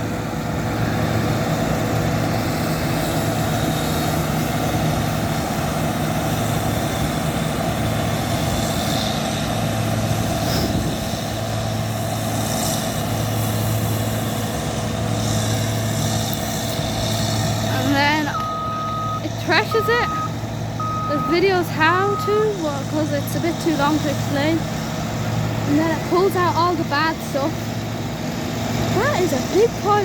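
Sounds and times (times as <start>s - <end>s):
combine harvester engine drone: 0.0s - 30.0s
machinery hum: 0.0s - 30.0s.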